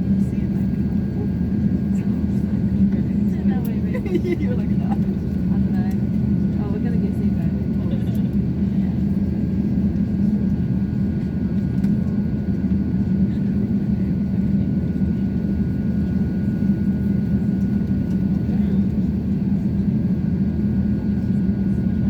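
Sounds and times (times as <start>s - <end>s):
aircraft cabin hum: 0.1s - 22.0s.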